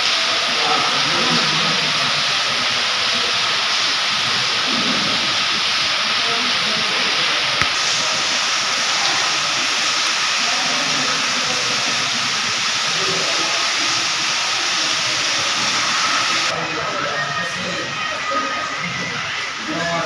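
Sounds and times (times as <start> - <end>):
heavy rain: 0.0 - 20.0.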